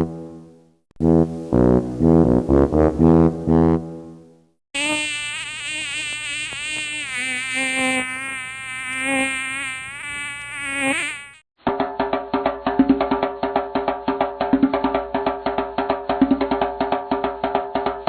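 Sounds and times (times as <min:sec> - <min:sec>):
buzzing with wavering pitch: 0:04.8 - 0:11.4.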